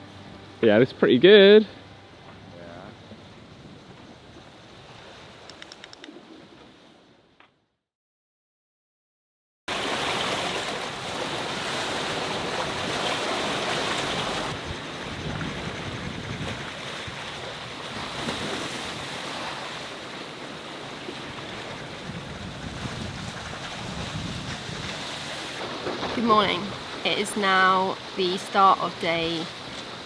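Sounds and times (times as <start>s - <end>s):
wind on microphone: 2.3s - 5.5s, 14.0s - 19.8s, 21.2s - 27.0s
sea washing past a yacht: 9.7s - 30.0s.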